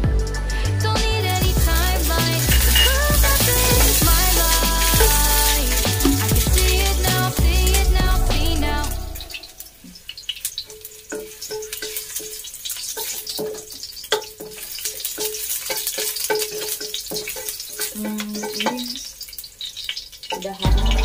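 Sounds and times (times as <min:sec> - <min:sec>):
aromatics sizzling in oil: 0:00.2 - 0:21.0
wooden spatula scraping and tapping pan: 0:10.6 - 0:19.4.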